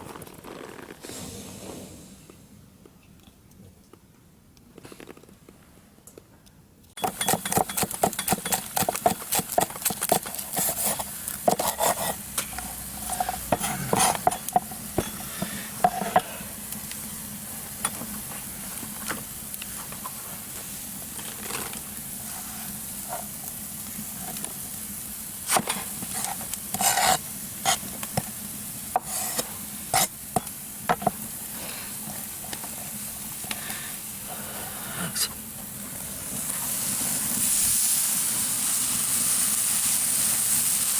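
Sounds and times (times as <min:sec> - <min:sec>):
food sizzling in fat: 0:07.0 - 0:40.9
metal utensil scraping on lid: 0:10.5 - 0:16.2.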